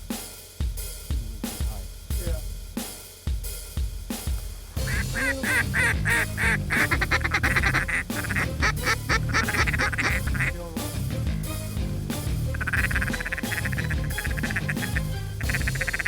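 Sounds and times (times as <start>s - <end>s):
music: 0.0s - 16.0s
duck quacking: 4.8s - 10.9s, 12.4s - 16.0s.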